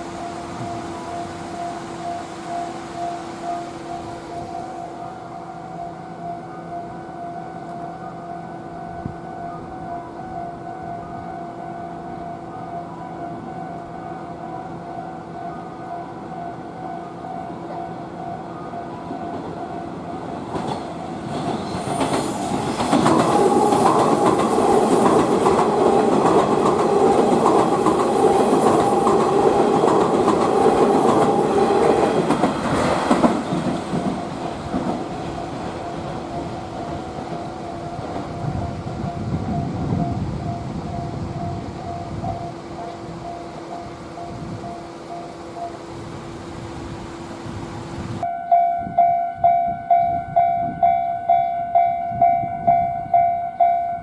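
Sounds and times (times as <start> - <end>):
crossing warning bell ringing: 0.0 - 46.6, 48.2 - 54.0
train wheels clattering over joints: 20.4 - 40.1.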